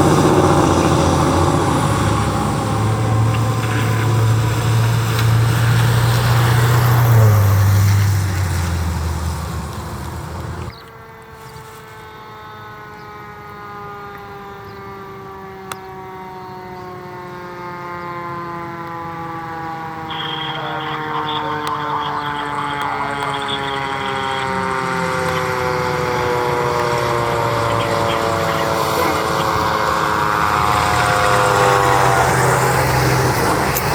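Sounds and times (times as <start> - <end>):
mechanical siren winding down: 0.0 - 11.0, 12.1 - 33.9
engine and road noise: 0.0 - 33.9
thin high tone: 20.1 - 30.2.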